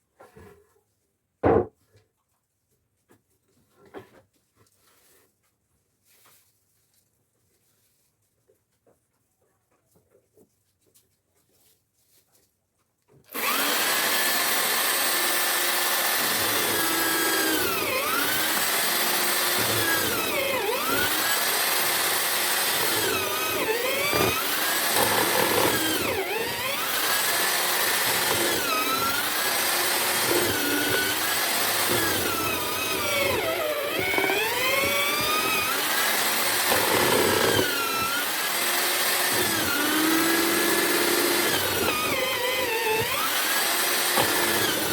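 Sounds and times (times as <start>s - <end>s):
drill-powered mortising machine: 13.3s - 44.9s.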